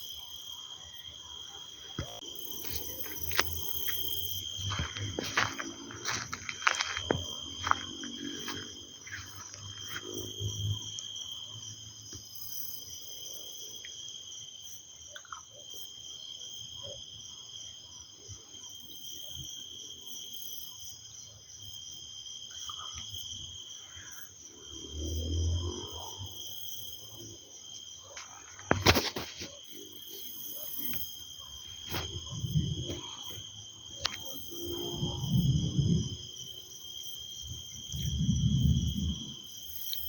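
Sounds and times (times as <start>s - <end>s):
insects chirring: 0.0s - 40.0s
distant thunder rumble: 37.9s - 39.4s.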